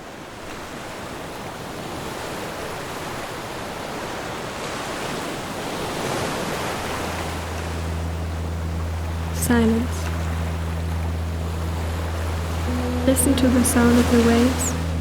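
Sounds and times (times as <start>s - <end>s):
waves washing onto shore: 0.0s - 15.0s
low steady hum: 6.9s - 15.0s.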